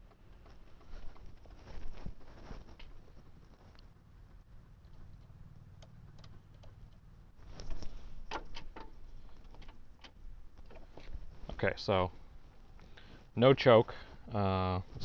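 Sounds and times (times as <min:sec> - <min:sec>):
light clicks and knocks: 0:00.0 - 0:03.9, 0:04.8 - 0:11.2.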